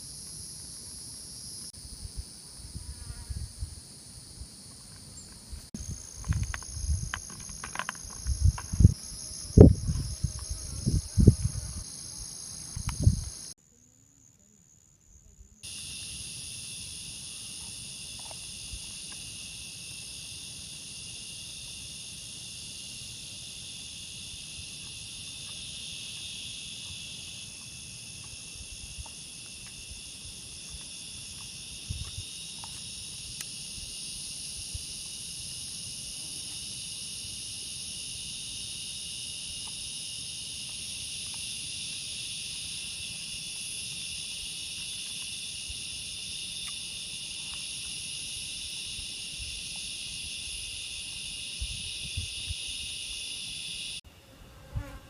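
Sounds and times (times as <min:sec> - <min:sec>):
forest insects chorus: 0:00.0 - 0:54.0.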